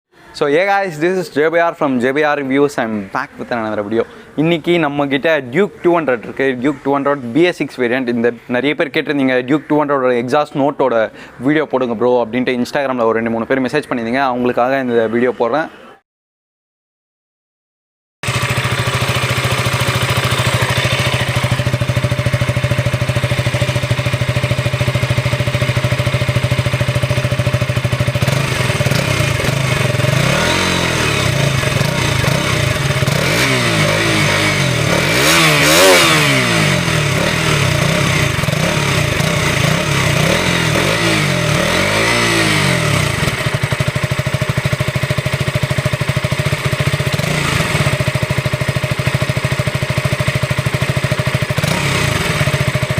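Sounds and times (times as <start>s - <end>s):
motorcycle engine idling and revving: 18.2s - 52.9s.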